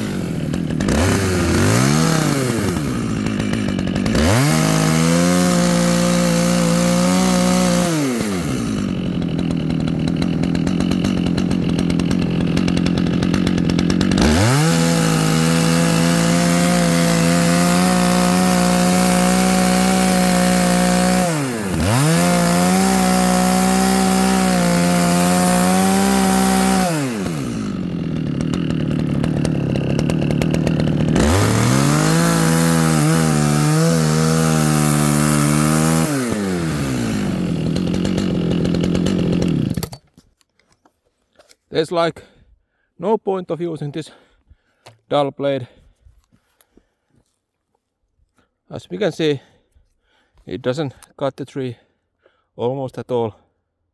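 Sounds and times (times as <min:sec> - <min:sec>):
chainsaw running at high revs: 0:00.0 - 0:40.0.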